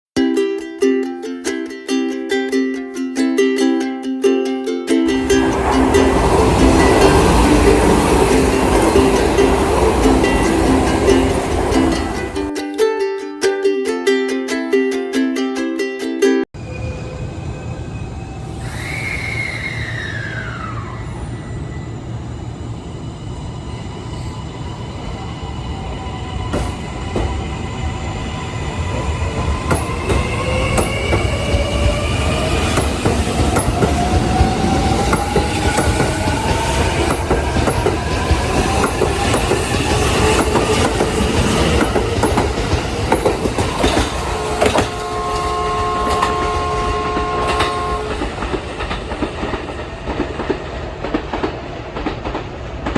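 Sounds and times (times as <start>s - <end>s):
wheels clicking over rail joints: 5.0s - 12.5s, 25.7s - 52.9s
train rumble: 5.1s - 12.5s, 16.6s - 52.9s
train motor whine rising in pitch: 16.6s - 49.0s.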